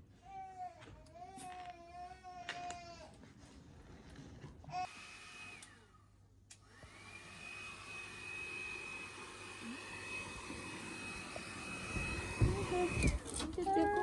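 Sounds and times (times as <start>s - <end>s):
hair dryer whining: 4.8s - 14.0s.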